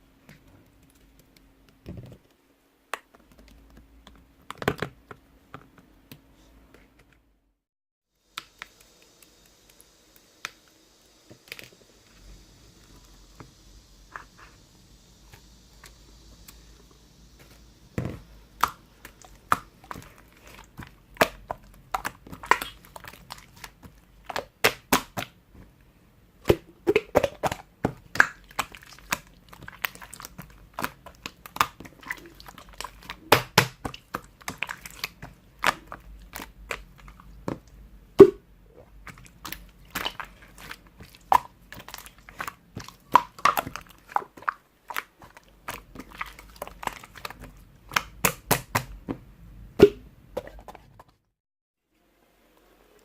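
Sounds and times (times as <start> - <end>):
slime squished by hand: 18.6 - 25.4, 26.4 - 38.4, 39.0 - 49.0.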